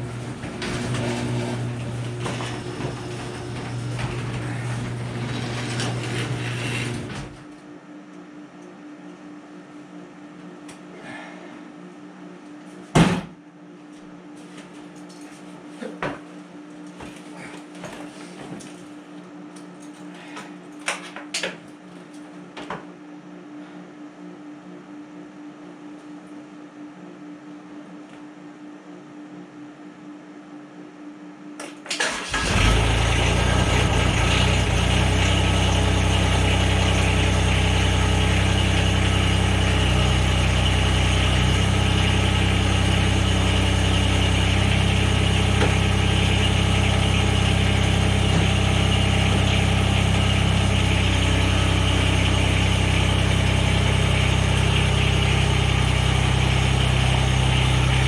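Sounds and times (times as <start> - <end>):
diesel engine cranking and idling: 0.0 - 7.4, 32.0 - 58.0.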